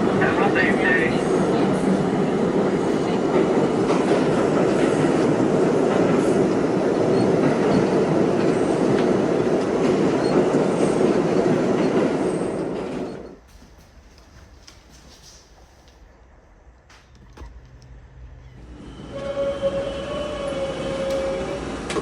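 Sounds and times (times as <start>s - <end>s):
subway train wheels rumbling: 0.0s - 22.0s
high squeals of wheels: 18.4s - 21.9s.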